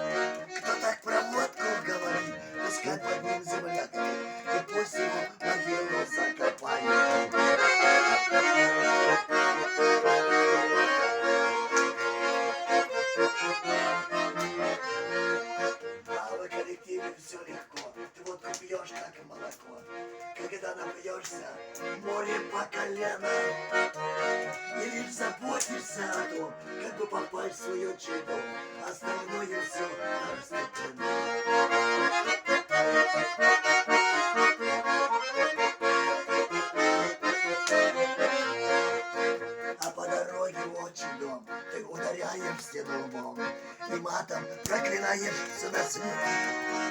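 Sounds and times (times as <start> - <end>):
button accordion melody: 0.0 - 46.9.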